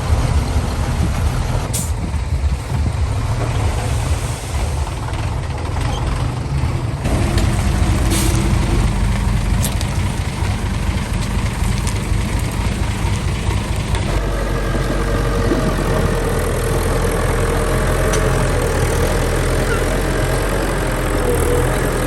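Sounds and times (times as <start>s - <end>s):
heavy diesel engines rumbling: 0.0s - 22.0s
air brake hisses: 8.1s - 8.5s.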